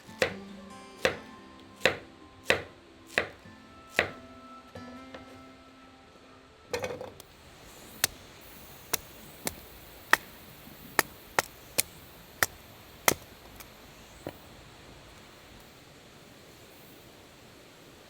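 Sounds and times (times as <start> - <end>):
knife chopping on cutting board: 1.8 - 3.4, 4.0 - 4.2.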